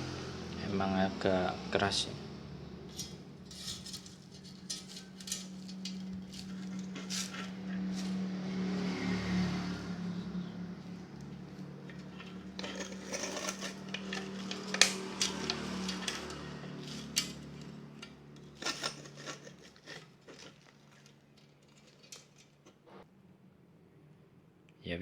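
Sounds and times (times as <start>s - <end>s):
metallic clinks and scrapes: 2.8s - 8.8s, 11.1s - 23.0s.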